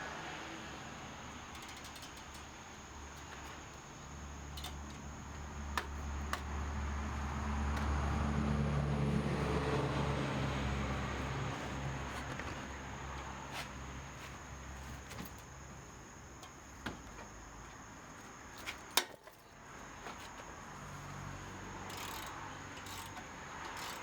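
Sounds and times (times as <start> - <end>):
metallic clicks of hand tools: 1.5 - 3.6, 4.5 - 5.1, 21.8 - 24.0.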